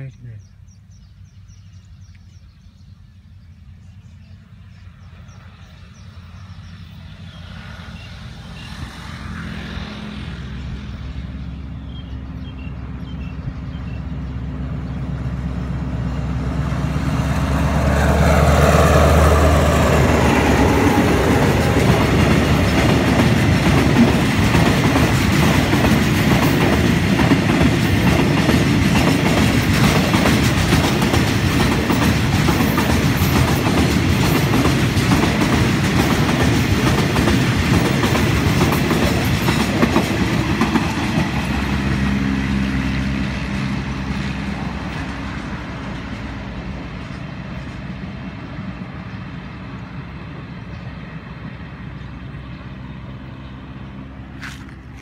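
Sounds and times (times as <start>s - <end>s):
locomotive engine rumble: 9.8s - 55.0s
train wheels clickety-clack: 18.9s - 47.8s.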